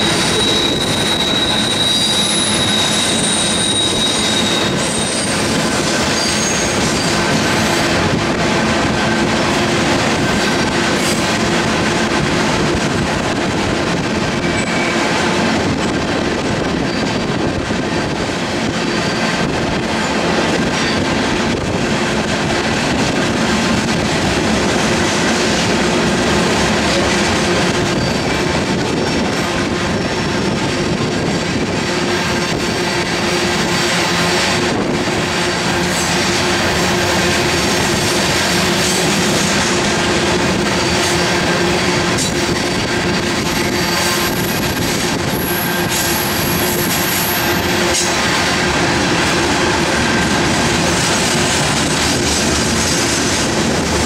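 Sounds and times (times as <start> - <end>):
high wheel squeal: 0.0 - 7.2, 14.4 - 15.1, 18.9 - 19.4, 27.7 - 30.1, 43.6 - 48.1
freight trains rumbling and clattering: 0.0 - 54.0.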